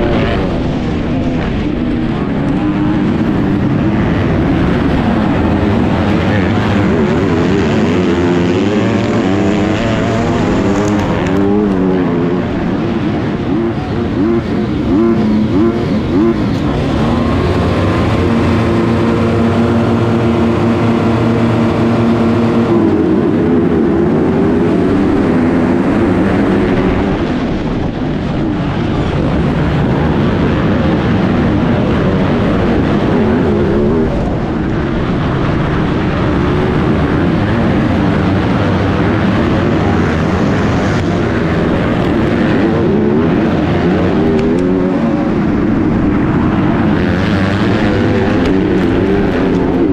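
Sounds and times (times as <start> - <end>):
motocross bike engine revving: 0.0 - 27.5, 29.2 - 49.9.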